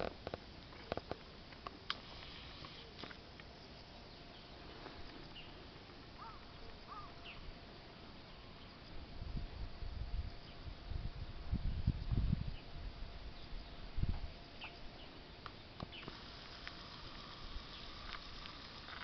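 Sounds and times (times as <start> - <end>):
low rumbling storm wind: 8.9 - 14.6.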